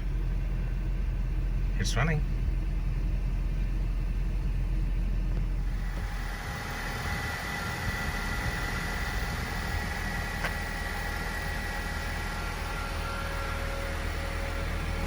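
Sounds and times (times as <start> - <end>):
car engine idling: 0.0 - 15.0
faint high whine: 0.0 - 15.0.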